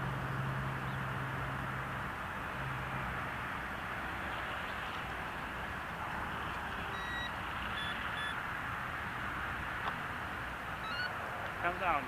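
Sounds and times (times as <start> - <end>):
steady rushing noise: 0.0 - 12.0
short electronic beeps: 6.9 - 8.4, 10.8 - 11.2.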